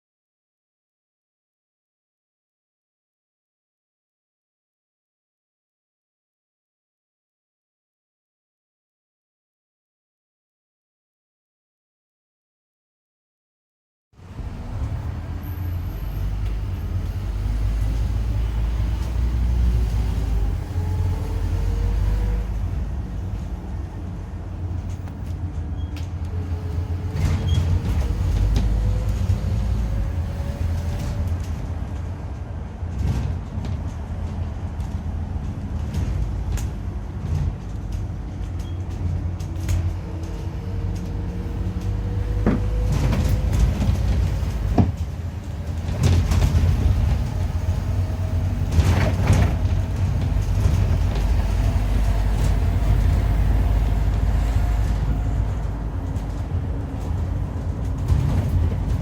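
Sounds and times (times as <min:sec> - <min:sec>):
bus diesel engine rumbling: 0:14.2 - 0:59.0.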